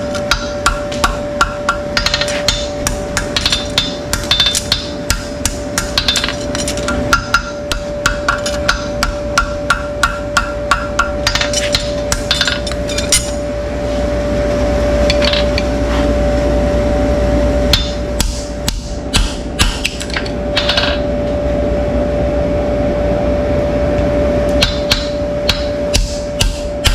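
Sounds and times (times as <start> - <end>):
hammer striking: 0.0 - 13.4, 17.7 - 21.1, 24.6 - 26.9.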